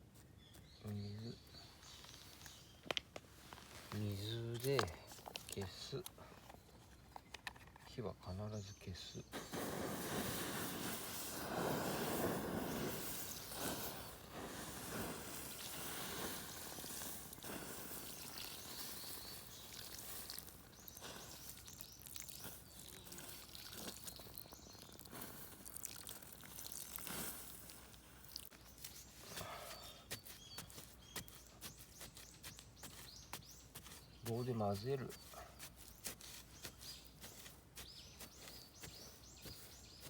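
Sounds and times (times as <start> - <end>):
water hissing on embers: 9.3 - 30.6
water dripping: 16.9 - 28.6.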